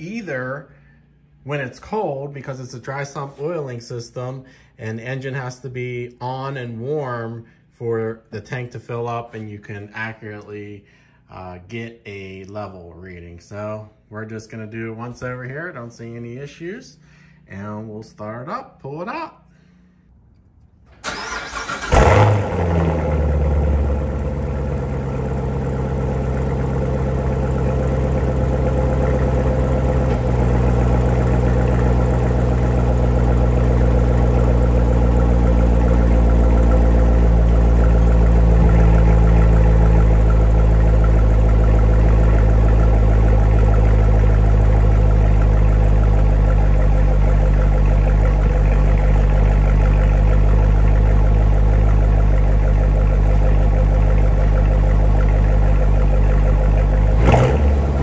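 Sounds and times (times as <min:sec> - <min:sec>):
car engine starting and idling: 0:20.3 - 0:58.0.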